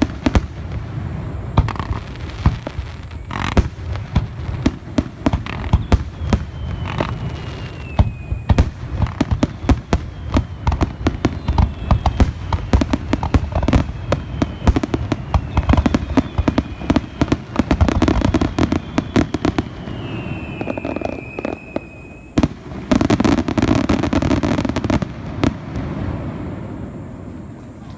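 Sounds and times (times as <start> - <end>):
fireworks bangs and crackles: 0.0 - 27.9
fireworks falling whistles: 0.0 - 27.9.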